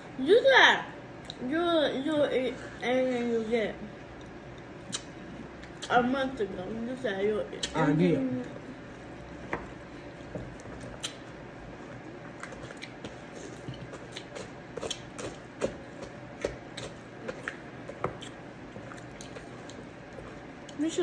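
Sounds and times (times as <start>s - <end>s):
wet chewing: 8.9s - 20.8s.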